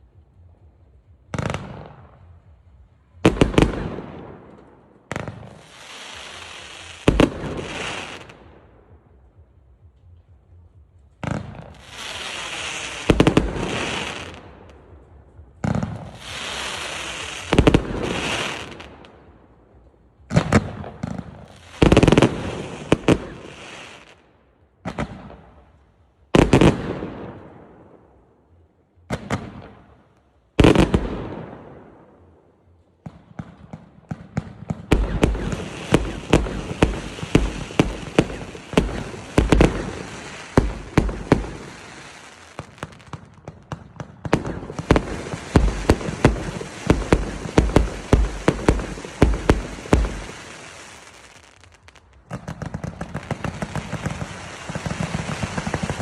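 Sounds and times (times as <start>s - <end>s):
fireworks bangs: 15.6s - 19.2s, 33.0s - 56.0s
fireworks hissing tails: 35.0s - 43.1s, 44.6s - 52.0s.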